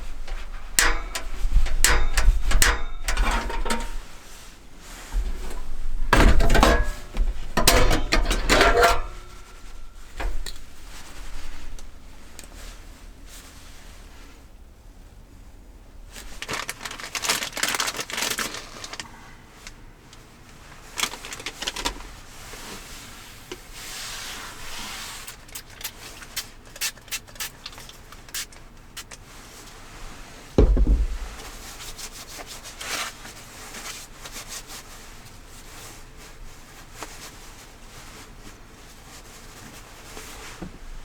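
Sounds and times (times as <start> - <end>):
rubbing and scraping: 0.0 - 13.8
heavy dull thump: 30.6 - 31.6.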